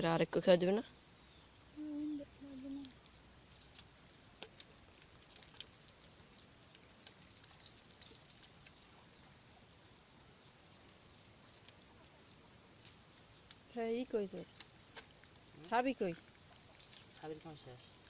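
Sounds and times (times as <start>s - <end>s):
faint ticks: 1.4s - 13.7s
light pattering: 2.4s - 18.0s.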